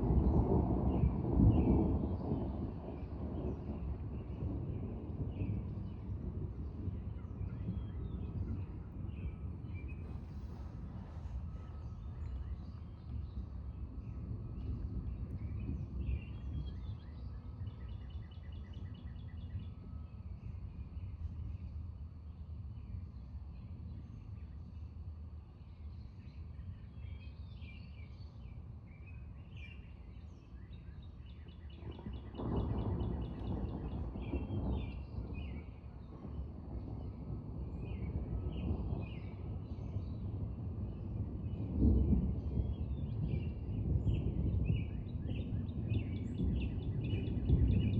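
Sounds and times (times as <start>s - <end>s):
low rumble of outdoor noise: 0.0s - 47.9s
birds singing: 25.5s - 47.9s.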